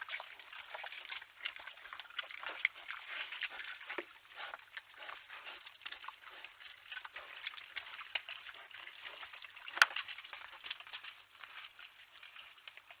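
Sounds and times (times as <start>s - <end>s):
animals crunching food: 0.0s - 13.0s.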